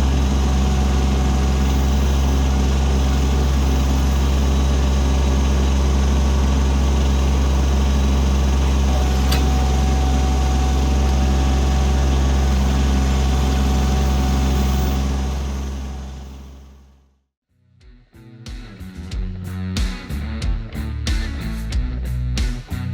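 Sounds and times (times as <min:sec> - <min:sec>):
diesel tractor engine running: 0:00.0 - 0:17.0.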